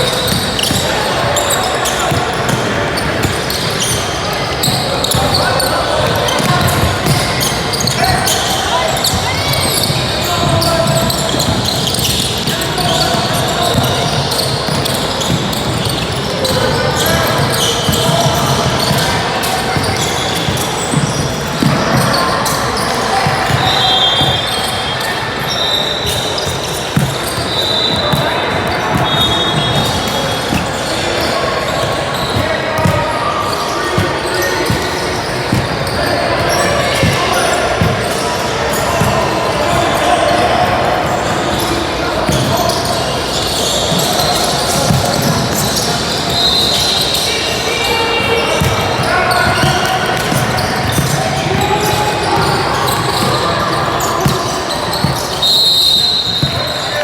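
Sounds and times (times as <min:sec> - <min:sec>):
busy hall noise: 0:00.0 - 0:57.0
crowd and player voices: 0:00.0 - 0:57.0
basketball bouncing on gym floor: 0:00.1 - 0:05.4, 0:06.0 - 0:22.6, 0:26.1 - 0:38.2, 0:38.8 - 0:43.0, 0:43.6 - 0:46.1, 0:48.4 - 0:55.4
basketball dribbling on gym floor: 0:26.4 - 0:30.7, 0:32.4 - 0:33.0, 0:48.6 - 0:51.6, 0:54.2 - 0:55.3.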